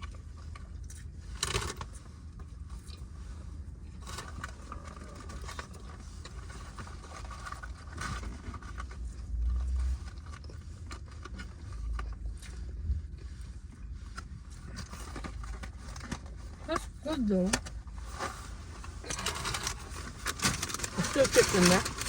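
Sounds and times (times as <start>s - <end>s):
steady low rumble: 0.0s - 22.0s
food wrappers crinkling: 17.6s - 22.0s.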